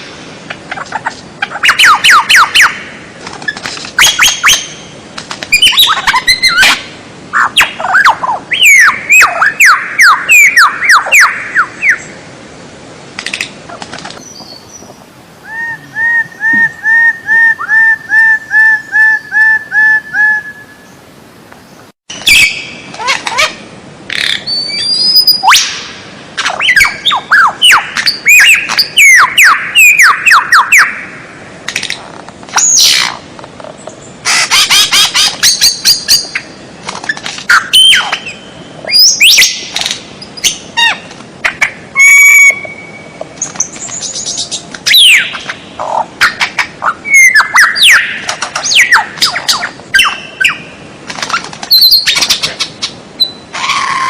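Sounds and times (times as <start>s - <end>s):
bird whistles and trills: 3.4s - 4.8s, 5.5s - 6.8s, 7.4s - 12.1s, 22.1s - 23.5s, 26.4s - 30.9s, 34.3s - 39.6s, 42.0s - 45.5s, 46.2s - 50.7s, 51.3s - 52.6s.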